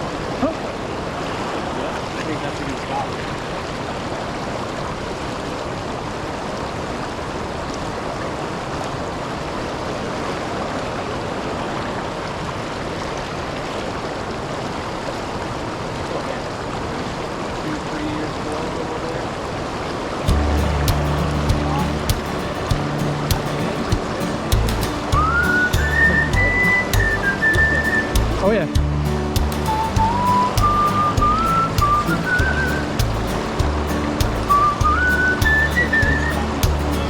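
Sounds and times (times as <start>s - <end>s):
river water rushing at waterfall: 0.0s - 37.0s.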